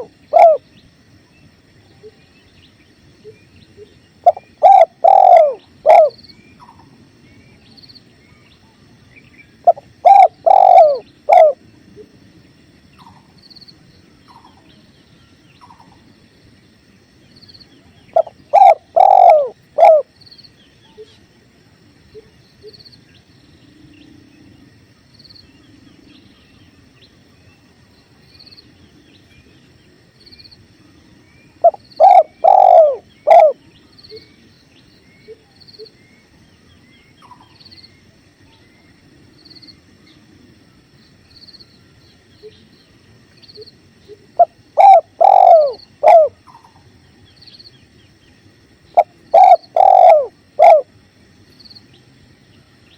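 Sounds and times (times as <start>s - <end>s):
dove cooing: 0.0s - 0.7s, 4.2s - 6.2s, 9.6s - 11.6s, 18.1s - 20.1s, 31.6s - 33.7s, 44.4s - 46.8s, 49.0s - 50.9s.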